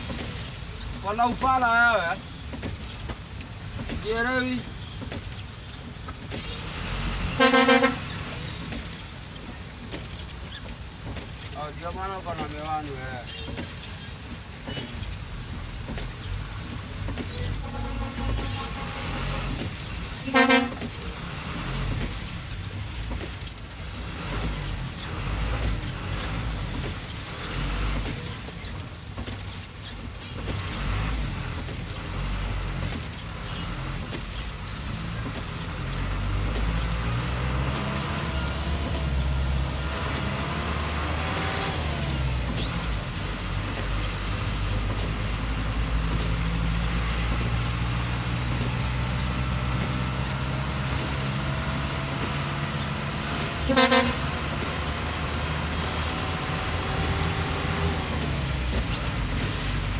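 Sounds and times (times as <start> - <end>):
idling car and bus engines: 0.0 - 59.9
car horn toot: 7.3 - 8.2, 17.5 - 19.6, 20.2 - 20.9, 53.6 - 54.4.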